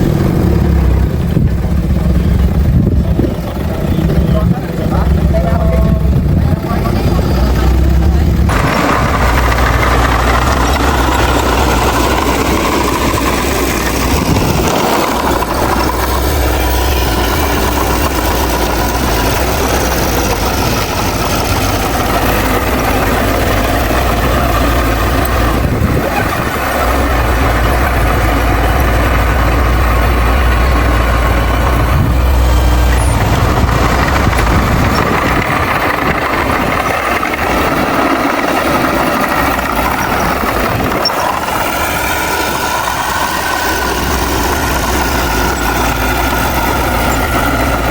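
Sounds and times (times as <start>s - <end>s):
heavy diesel engine running: 0.0s - 47.9s.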